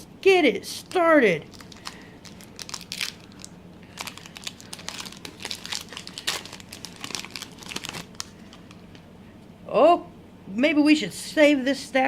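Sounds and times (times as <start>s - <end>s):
foil wrapper crinkling and tearing: 1.5s - 8.9s.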